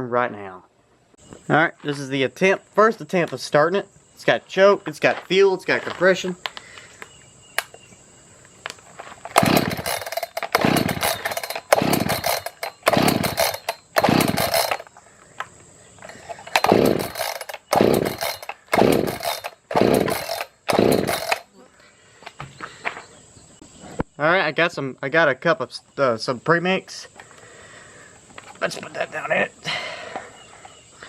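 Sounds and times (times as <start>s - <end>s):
chainsaw recoil starter pulls: 9.1s - 14.9s, 16.0s - 21.5s.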